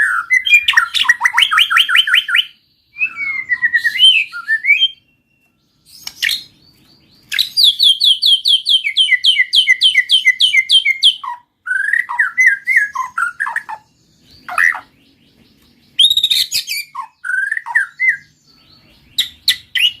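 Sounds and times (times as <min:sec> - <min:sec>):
songbirds singing: 0:00.0 - 0:20.0.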